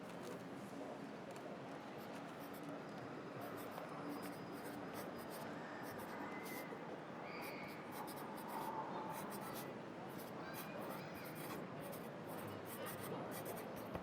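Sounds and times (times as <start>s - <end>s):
pencil scratching on paper: 2.4s - 2.7s, 3.4s - 6.6s, 7.4s - 14.0s.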